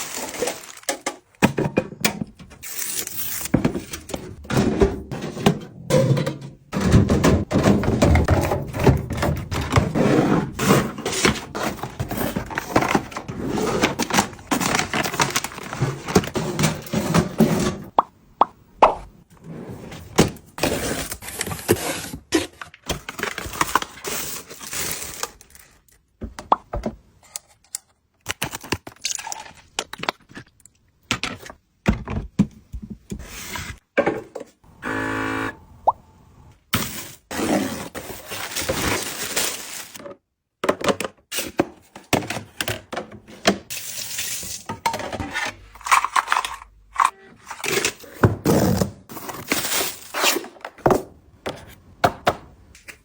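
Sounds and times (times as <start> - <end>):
short buzzing: 34.7 - 36.2.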